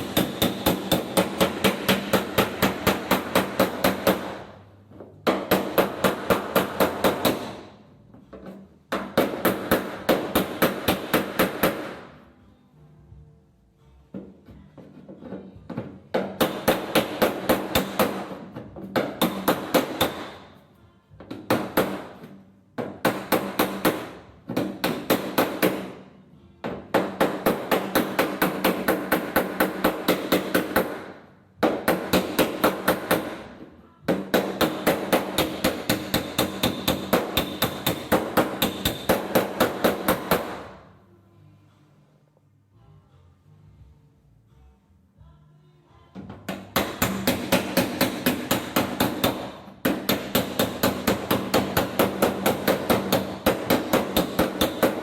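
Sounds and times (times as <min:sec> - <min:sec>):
hammer striking steel panel: 0:00.0 - 0:04.6, 0:05.2 - 0:07.7, 0:08.9 - 0:12.1, 0:16.1 - 0:20.6, 0:21.3 - 0:26.0, 0:26.8 - 0:40.8, 0:46.5 - 0:55.0.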